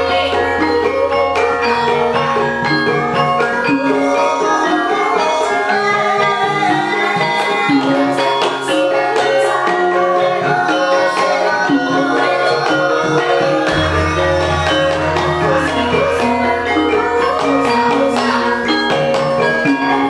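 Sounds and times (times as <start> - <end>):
metallophones ringing: 10.2 - 20.0
hand drum strokes: 13.2 - 19.6.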